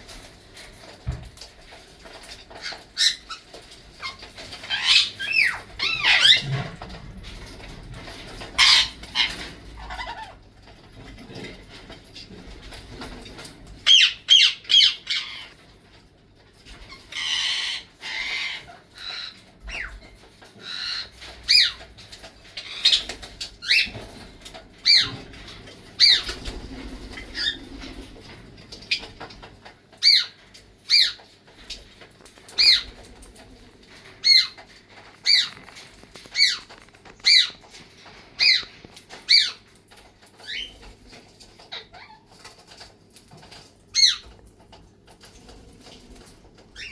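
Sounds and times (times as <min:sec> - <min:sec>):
parrot chatter: 0:02.1 - 0:12.3, 0:13.0 - 0:15.7, 0:16.7 - 0:42.9
parrots screeching: 0:02.5 - 0:06.8, 0:08.4 - 0:10.4, 0:13.9 - 0:15.6, 0:16.9 - 0:21.8, 0:22.6 - 0:24.0, 0:30.0 - 0:31.2, 0:32.5 - 0:33.0, 0:34.2 - 0:34.6, 0:35.2 - 0:35.6, 0:36.3 - 0:37.6, 0:38.4 - 0:38.7, 0:39.3 - 0:39.6, 0:41.7 - 0:42.3.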